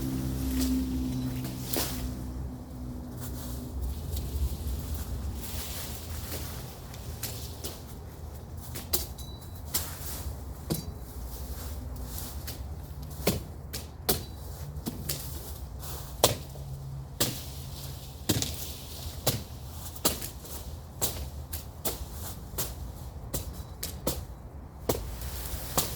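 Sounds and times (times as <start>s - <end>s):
machete chopping brush: 0.2s - 2.3s, 12.0s - 15.4s, 16.1s - 16.6s, 17.2s - 25.9s.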